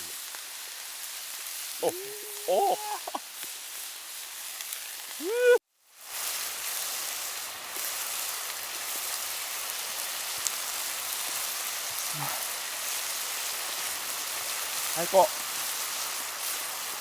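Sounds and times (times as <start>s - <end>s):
meat and vegetables sizzling: 0.0s - 17.0s
person exclaiming: 1.8s - 3.2s, 5.2s - 5.6s.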